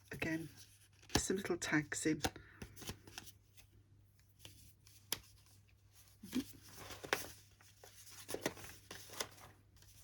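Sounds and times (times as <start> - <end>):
paper rustling: 4.3 - 10.0.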